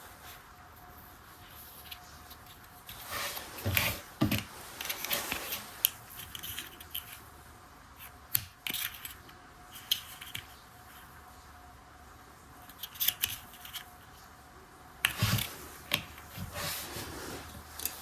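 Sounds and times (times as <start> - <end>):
plastic toy parts rustling: 1.4 - 7.3, 8.0 - 11.1, 12.6 - 14.2.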